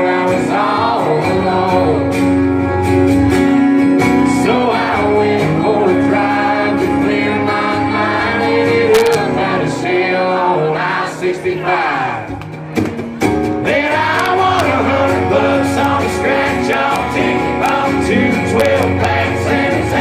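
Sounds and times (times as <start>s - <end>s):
country band playing: 0.0s - 20.0s
person singing: 4.0s - 12.1s, 13.6s - 20.0s.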